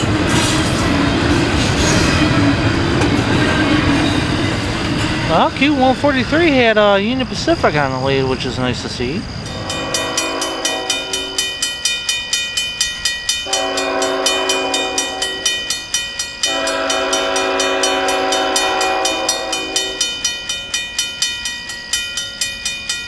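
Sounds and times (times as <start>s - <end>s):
railroad crossing bell ringing: 0.0s - 23.0s
locomotive air horn blasts: 9.5s - 11.5s, 13.5s - 15.6s, 16.4s - 20.1s.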